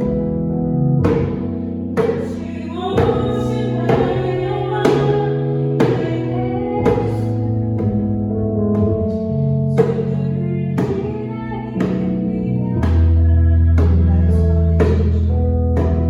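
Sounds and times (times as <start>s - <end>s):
sustained chord accompaniment: 0.0s - 12.8s
djembe strikes: 1.0s - 8.1s, 9.8s - 10.2s
person singing: 2.0s - 7.6s, 9.7s - 15.3s.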